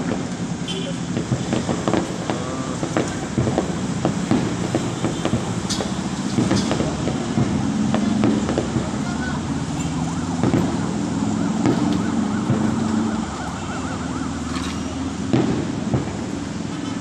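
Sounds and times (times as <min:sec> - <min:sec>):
street traffic rumble: 0:00.0 - 0:17.0
sharp pops: 0:00.8 - 0:16.8
warbling yelp siren: 0:08.5 - 0:16.1.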